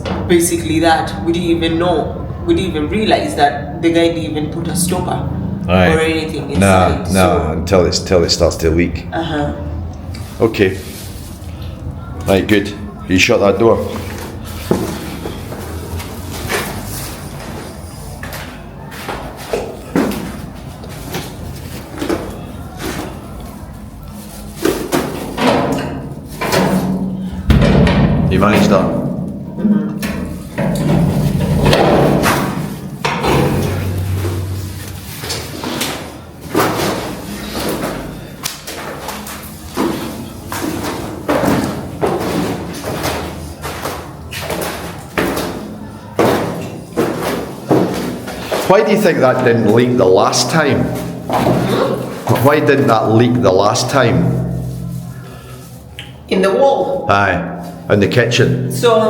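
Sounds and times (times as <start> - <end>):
door knocks and clunks: 25.4 - 29.4, 30.0 - 34.4.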